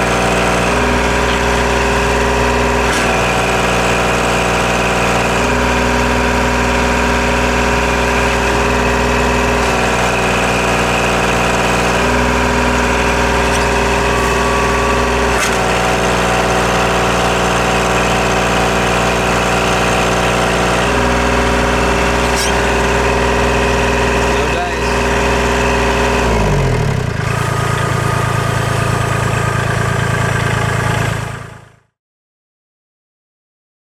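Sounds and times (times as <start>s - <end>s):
diesel tractor engine running: 0.0s - 31.9s
sharp metal clanks: 8.3s - 18.2s, 20.3s - 25.0s.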